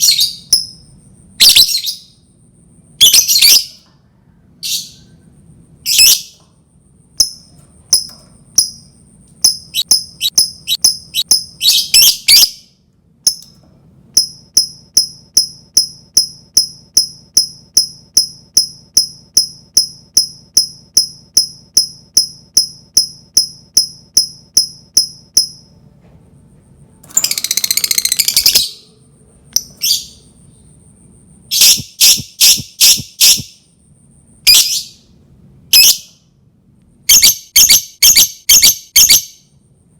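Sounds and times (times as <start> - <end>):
bird sharp high chirps: 0.0 - 0.8, 1.4 - 2.2, 9.4 - 12.7, 31.5 - 33.6, 34.5 - 35.1, 37.1 - 39.4
bird harsh chattering trill: 9.5 - 12.6, 31.5 - 33.5.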